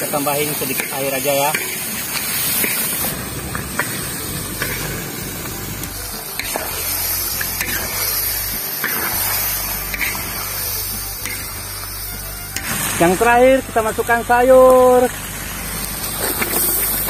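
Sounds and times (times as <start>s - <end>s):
chicken sizzling in a wok: 0.0s - 17.0s
spatula clicking and scraping: 6.4s - 11.6s.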